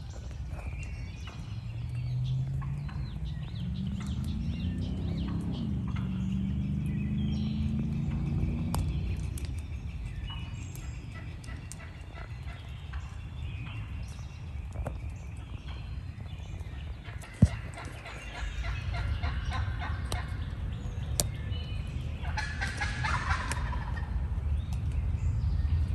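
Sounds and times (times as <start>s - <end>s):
low drone climbing in pitch: 0.0s - 25.9s
songbirds singing: 0.0s - 25.9s
wild turkey gobbling: 17.0s - 20.5s, 22.2s - 24.2s.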